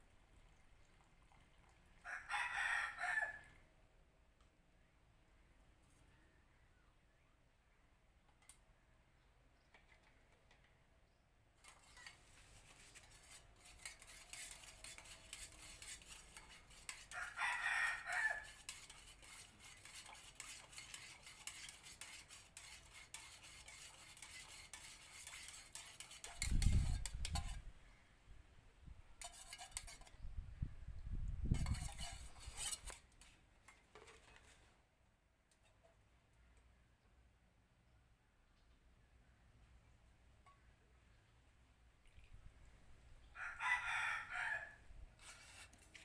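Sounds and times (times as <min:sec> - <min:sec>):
rooster crowing: 0:02.0 - 0:03.4, 0:17.1 - 0:18.5, 0:43.4 - 0:44.8
tool stirring in a container: 0:11.6 - 0:27.7, 0:29.2 - 0:30.2, 0:31.4 - 0:34.6, 0:45.2 - 0:46.0.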